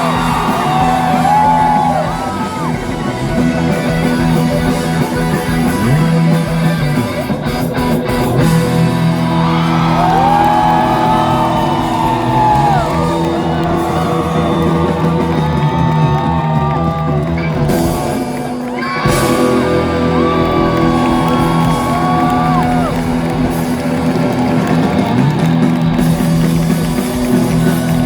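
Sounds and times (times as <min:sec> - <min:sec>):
bass: 0:00.0 - 0:28.0
bending lead guitar notes: 0:00.0 - 0:28.0
drums: 0:00.0 - 0:28.0.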